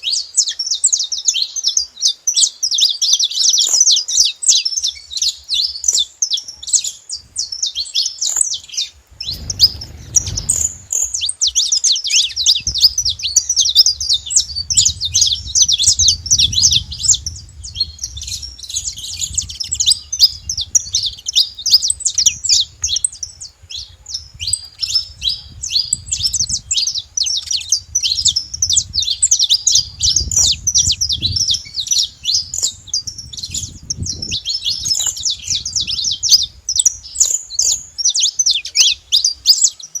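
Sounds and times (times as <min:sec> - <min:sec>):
finches chirping and singing: 0:00.0 - 0:40.0
low rumble: 0:09.1 - 0:11.2.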